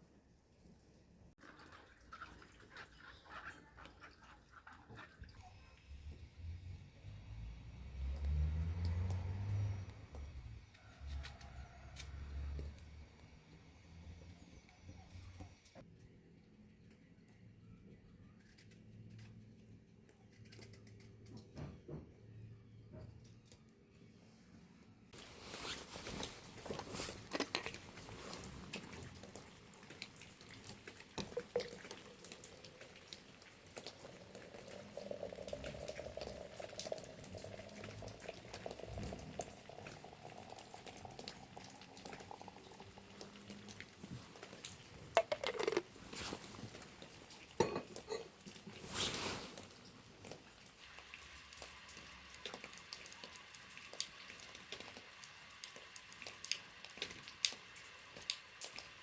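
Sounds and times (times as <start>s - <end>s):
water pouring and dripping: 1.3s - 15.9s, 25.1s - 59.0s
rising tone of vessel filling: 34.0s - 43.8s
dishes clinking: 47.6s - 48.4s.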